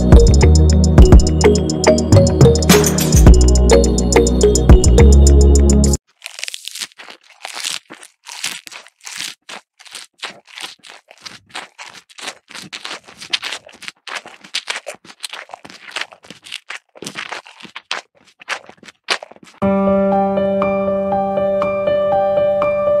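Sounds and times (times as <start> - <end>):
cow chewing grass: 6.0 - 19.6.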